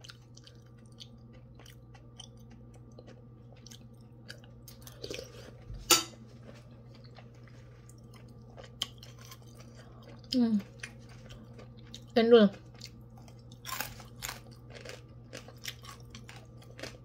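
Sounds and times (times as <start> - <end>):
soft chewing and mouth clicks: 0.0 - 5.7, 6.3 - 17.0
steady low hum: 0.0 - 17.0.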